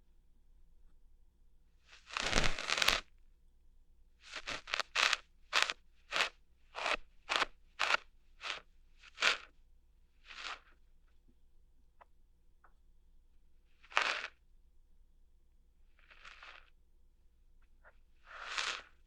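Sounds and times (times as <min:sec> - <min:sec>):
ear hair being plucked: 0:02.1 - 0:03.0.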